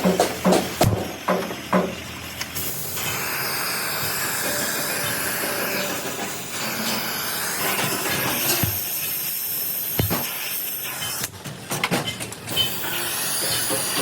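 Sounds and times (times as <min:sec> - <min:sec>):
compressed air hissing: 0:02.6 - 0:11.0.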